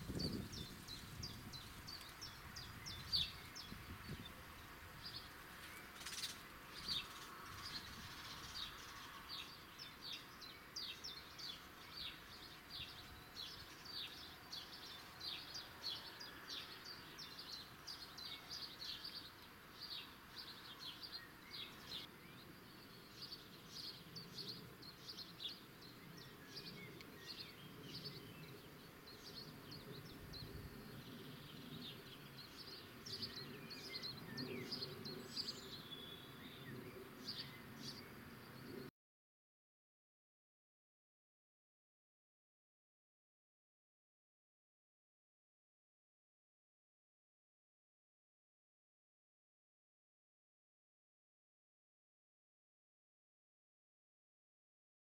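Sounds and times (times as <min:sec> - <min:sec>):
faint outdoor background noise: 0:00.0 - 0:38.9
small birds chirping: 0:00.0 - 0:38.9.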